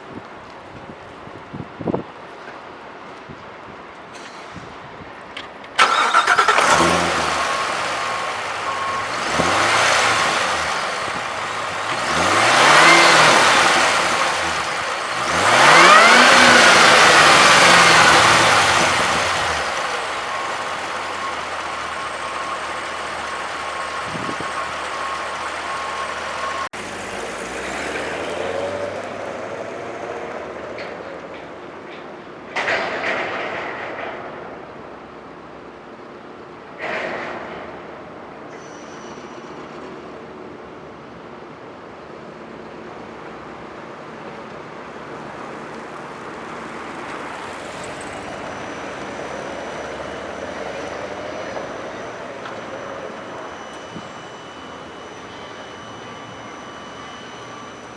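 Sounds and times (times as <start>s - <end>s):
engine idling: 5.8s - 27.4s
engine revving: 5.8s - 30.9s
car engine starting: 5.8s - 31.6s, 44.8s - 57.9s.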